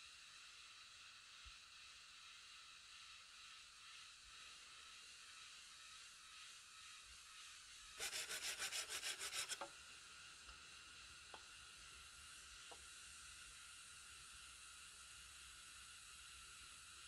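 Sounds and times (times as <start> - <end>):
hand tool rasping on wood: 8.0 - 9.7.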